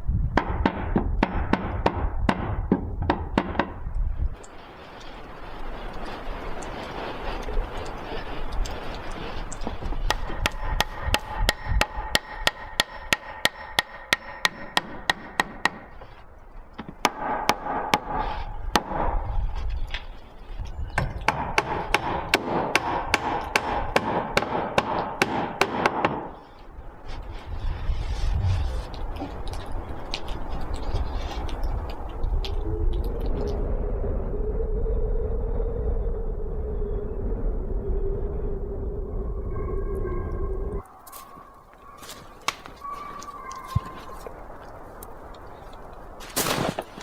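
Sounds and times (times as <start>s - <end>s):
steady low rumble: 26.6s - 41.6s.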